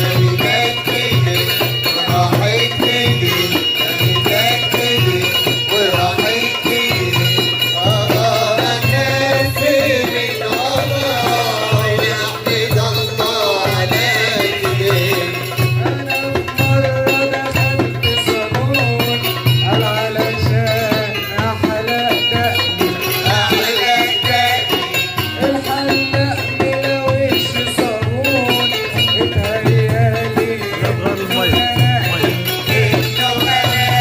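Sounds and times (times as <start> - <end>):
percussion beat: 0.0 - 34.0
person singing: 0.0 - 34.0.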